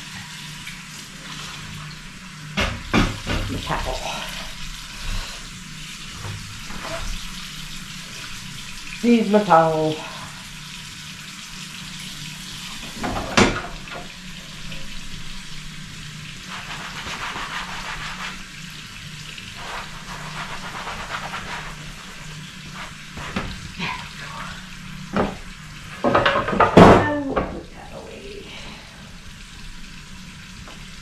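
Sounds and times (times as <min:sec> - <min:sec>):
tap water running into sink: 0:00.0 - 0:27.9, 0:28.8 - 0:31.0
dishes clinking and knocking: 0:02.6 - 0:03.7, 0:12.8 - 0:14.1, 0:26.0 - 0:27.7.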